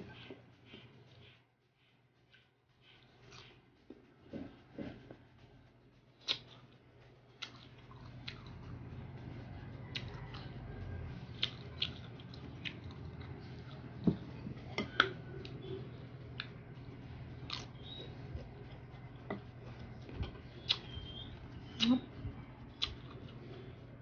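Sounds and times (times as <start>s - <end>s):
steady low hum: 0.0s - 24.0s
chewing crunchy mango slices: 6.2s - 8.9s, 9.5s - 14.0s, 17.2s - 23.8s.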